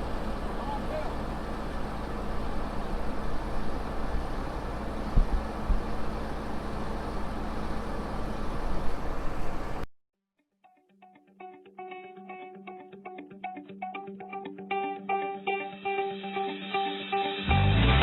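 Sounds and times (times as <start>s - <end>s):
combine harvester droning: 0.0s - 9.8s
faint guitar music: 10.4s - 18.0s.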